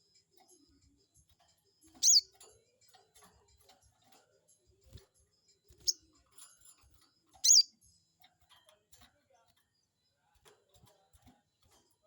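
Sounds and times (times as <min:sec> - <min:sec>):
bird giving sharp high calls: 0:02.0 - 0:02.3, 0:07.4 - 0:07.7.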